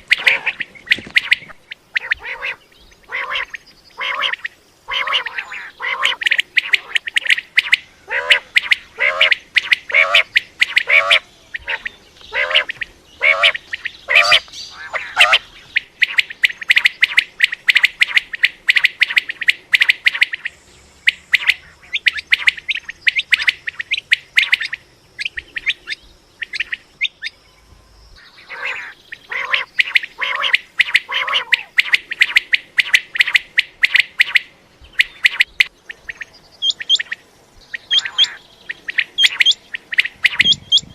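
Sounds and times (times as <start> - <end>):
lower harsh quail calls: 0.0 - 27.3, 28.2 - 40.9
quail high calls: 0.0 - 27.3, 28.2 - 40.9.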